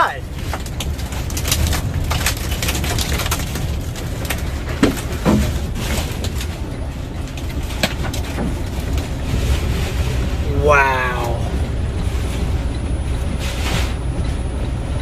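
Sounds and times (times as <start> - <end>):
tornado winds buffeting microphone: 0.0 - 15.0
debris cracking and clattering: 0.3 - 6.6.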